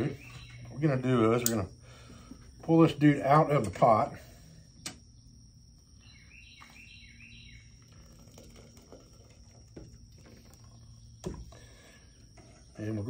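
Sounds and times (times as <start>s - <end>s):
bird calling with descending notes: 6.0s - 7.7s.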